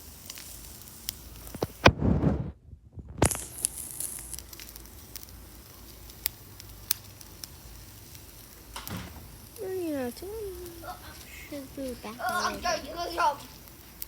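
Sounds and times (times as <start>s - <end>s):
food sizzling on grill: 0.0s - 1.9s, 3.2s - 14.0s
fire crackling and popping: 0.0s - 14.0s.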